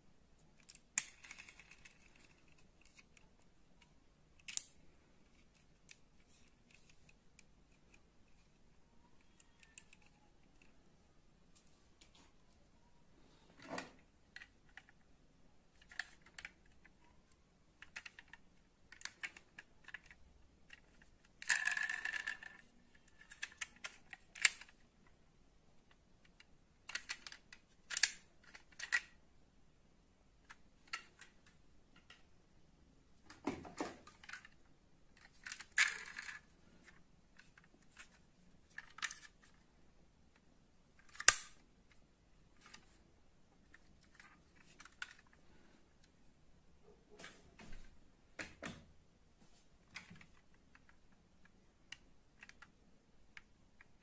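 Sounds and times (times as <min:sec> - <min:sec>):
metal toy cars clicking: 0:00.5 - 0:04.8, 0:09.0 - 0:10.8, 0:15.8 - 0:24.8, 0:34.0 - 0:39.6.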